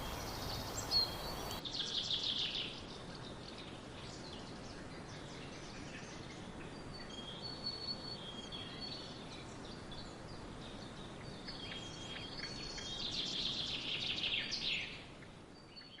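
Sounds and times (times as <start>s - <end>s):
fast run of birdsong: 0.0s - 1.6s
background hiss: 0.0s - 16.0s
songbirds chirping and singing: 0.0s - 16.0s.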